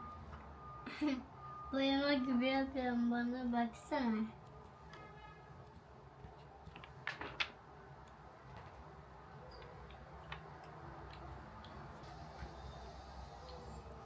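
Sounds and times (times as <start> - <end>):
small objects clicking and tapping: 9.5 - 12.2.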